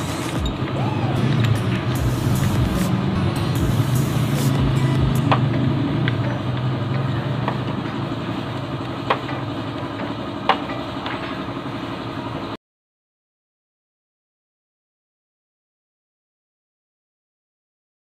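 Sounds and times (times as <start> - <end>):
low mechanical hum: 0.0 - 12.6.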